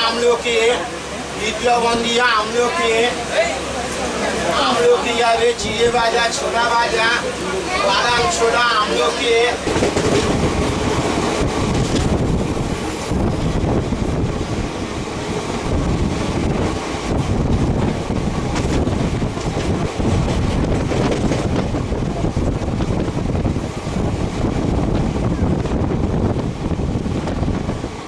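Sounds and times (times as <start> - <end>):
train rumbling: 0.0 - 28.0
wind buffeting microphone: 7.6 - 28.0.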